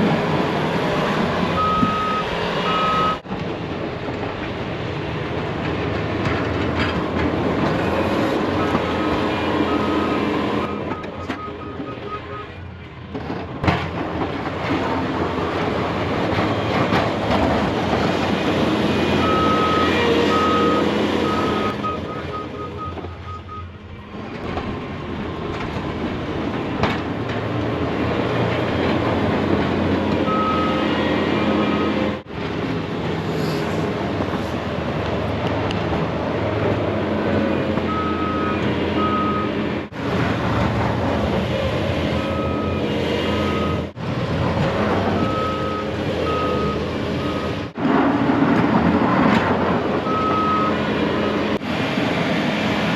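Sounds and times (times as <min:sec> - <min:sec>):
loader engine running: 0:00.0 - 0:52.9
reverse alarm beeping: 0:01.6 - 0:03.2, 0:08.6 - 0:12.6, 0:19.2 - 0:23.7, 0:30.3 - 0:32.0, 0:45.2 - 0:47.6, 0:50.1 - 0:51.4.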